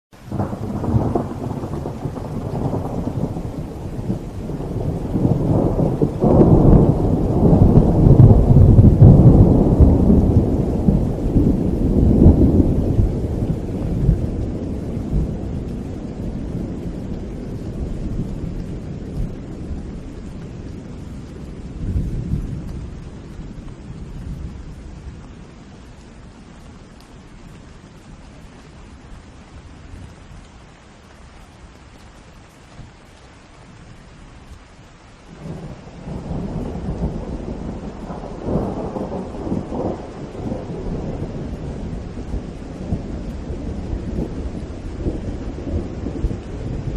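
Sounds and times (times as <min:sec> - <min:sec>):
steady rain: 0:00.1 - 0:46.9
thunder rolling: 0:00.3 - 0:25.2, 0:35.4 - 0:46.9.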